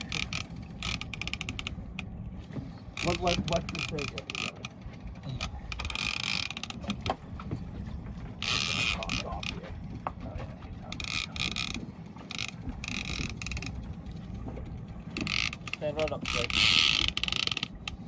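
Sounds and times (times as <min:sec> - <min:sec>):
fishing reel clicking: 0:00.0 - 0:01.8, 0:05.4 - 0:06.9, 0:11.0 - 0:13.8, 0:15.2 - 0:18.0.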